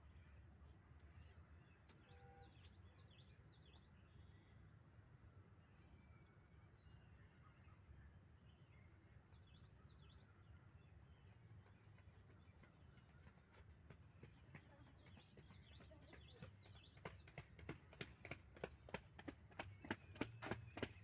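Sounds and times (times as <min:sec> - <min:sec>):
faint bird chirps: 0:01.1 - 0:04.7.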